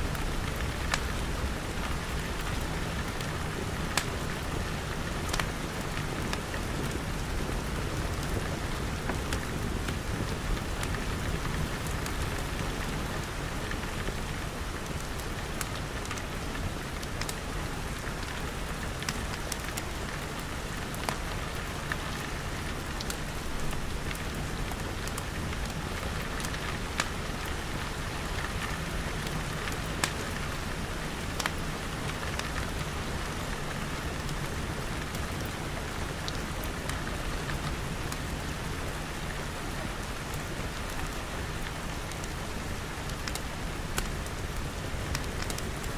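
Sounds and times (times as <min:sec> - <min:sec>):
fireplace fire crackling: 0:00.0 - 0:45.9
rain pattering: 0:00.0 - 0:45.9.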